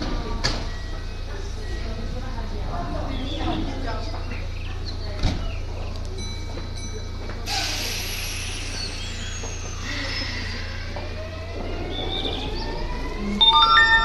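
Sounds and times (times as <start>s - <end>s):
air release hiss: 7.5s - 9.8s
train humming: 7.9s - 14.0s.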